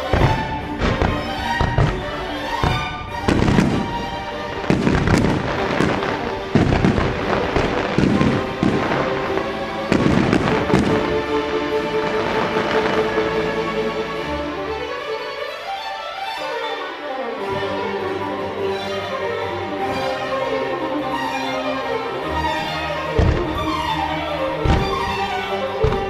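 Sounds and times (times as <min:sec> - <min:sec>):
fireworks bursting and crackling: 0:00.0 - 0:13.4, 0:23.2 - 0:23.8, 0:24.6 - 0:26.0
orchestral music: 0:00.0 - 0:26.0.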